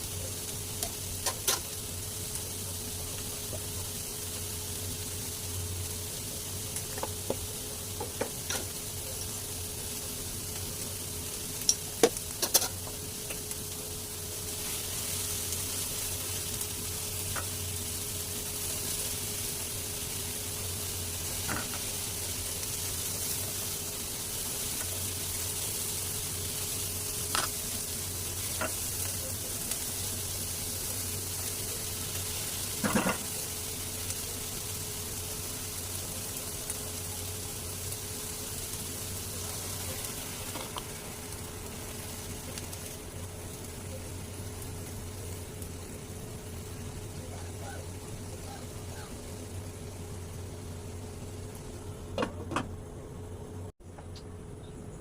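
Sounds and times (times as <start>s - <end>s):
eggs sizzling in a pan: 0.0s - 55.0s.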